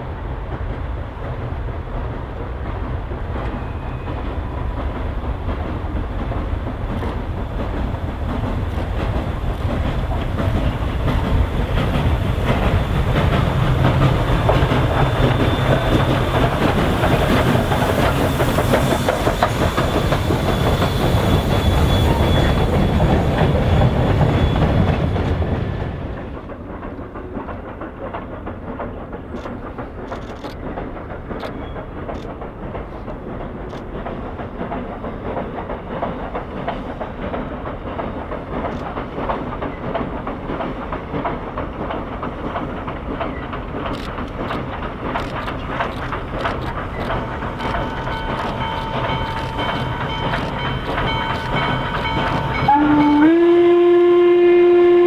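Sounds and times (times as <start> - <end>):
train rolling on rails: 0.0 - 55.0
wheels clicking over rail joints: 0.4 - 53.3
faint high squeal: 19.6 - 24.9.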